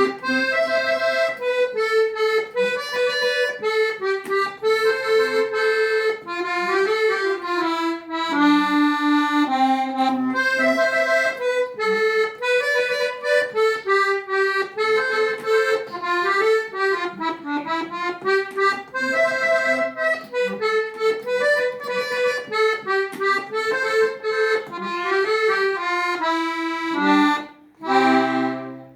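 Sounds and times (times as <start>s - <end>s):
accordion music: 0.0s - 28.9s.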